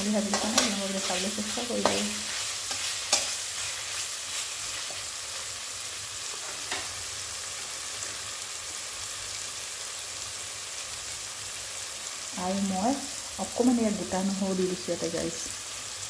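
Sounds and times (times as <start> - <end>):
food sizzling in oil: 0.0 - 16.0
spatula stirring: 0.1 - 5.1.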